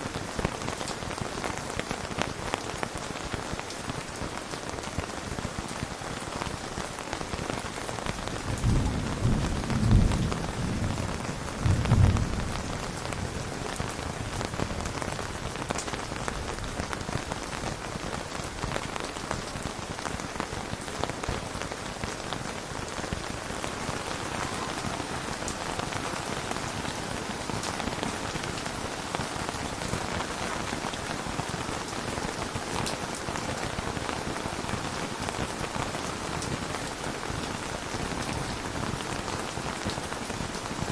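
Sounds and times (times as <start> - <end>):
steady rain: 0.0 - 40.9
thunder rumble: 8.5 - 14.7.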